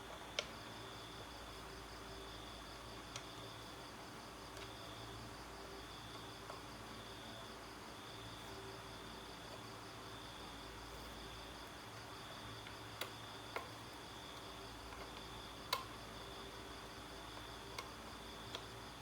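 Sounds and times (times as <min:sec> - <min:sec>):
faint background hiss: 0:00.0 - 0:19.0
small sharp clicks: 0:14.4 - 0:16.0.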